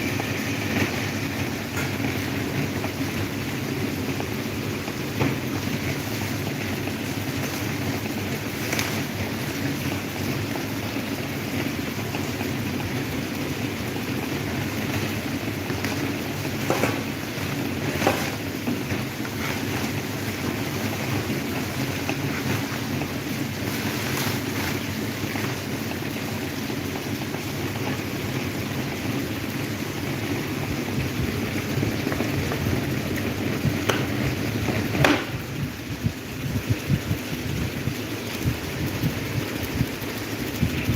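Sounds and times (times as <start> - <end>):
electric fan whirring: 0.0 - 40.9
air buffeting microphone: 30.6 - 40.9.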